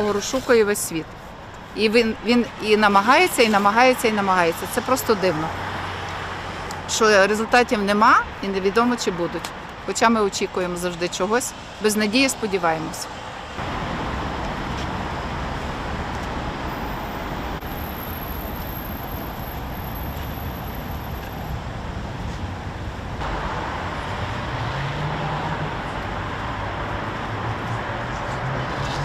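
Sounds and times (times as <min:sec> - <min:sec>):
city street traffic: 0:00.0 - 0:29.0.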